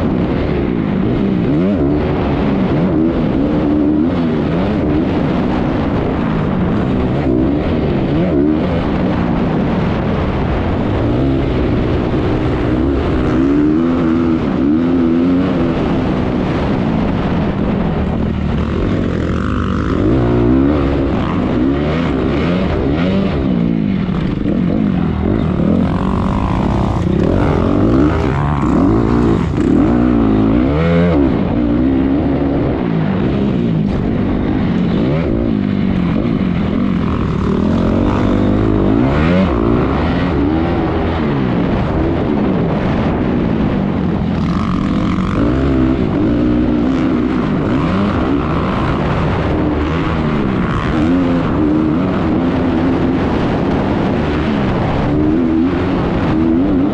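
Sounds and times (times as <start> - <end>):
motocross bike engine revving: 0.0 - 56.9.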